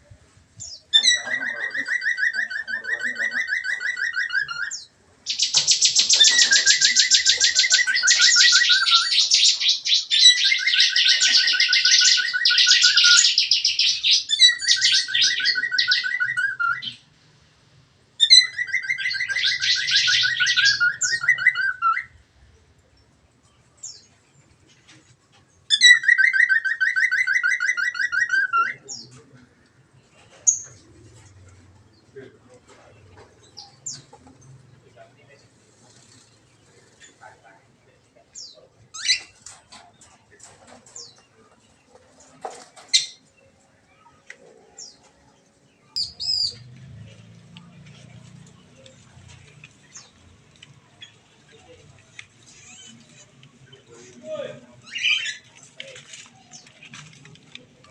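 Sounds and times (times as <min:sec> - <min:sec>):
songbird singing pulsing trills: 0:00.5 - 0:17.1.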